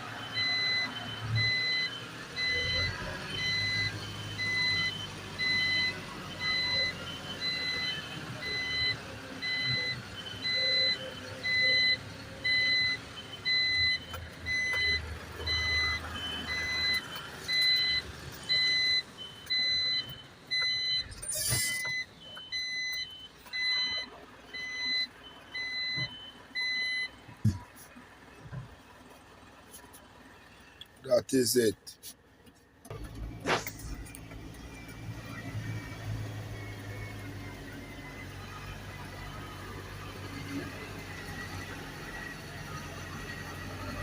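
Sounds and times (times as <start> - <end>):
truck engine rumble: 0.0 - 44.0
reversing alarm beeping: 0.2 - 27.6.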